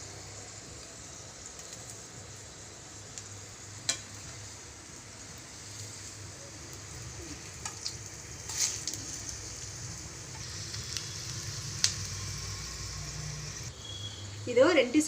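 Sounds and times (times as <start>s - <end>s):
snacks sizzling in hot oil: 0.0s - 15.0s.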